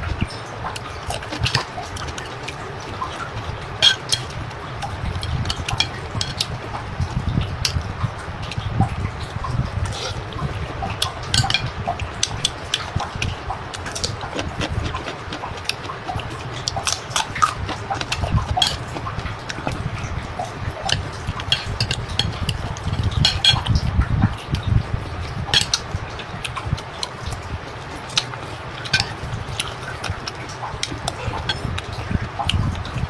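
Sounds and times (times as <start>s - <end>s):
utensils clicking against dish: 0.0s - 6.7s, 7.6s - 7.8s, 9.9s - 23.9s, 24.5s - 32.6s
chewing and slurping: 0.0s - 33.0s.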